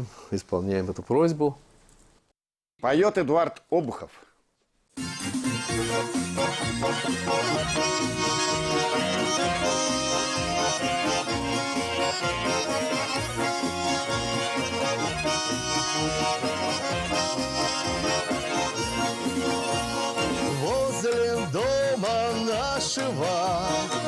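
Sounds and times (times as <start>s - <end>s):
button accordion playing folk melody: 5.0s - 24.0s.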